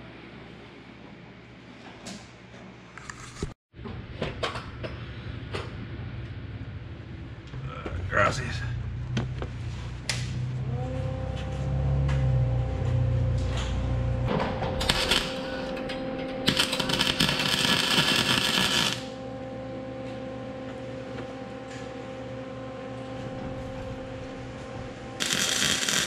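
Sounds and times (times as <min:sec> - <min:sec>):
low hum: 0:03.8 - 0:26.0
welder arc crackling: 0:14.8 - 0:15.7, 0:16.4 - 0:19.1, 0:25.2 - 0:26.0.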